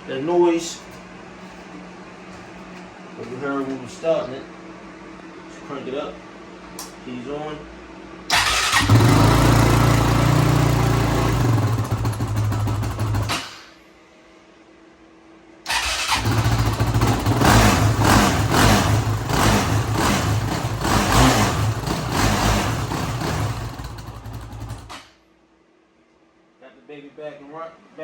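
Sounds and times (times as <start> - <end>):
quad engine revving: 8.3 - 13.5, 15.7 - 25.0.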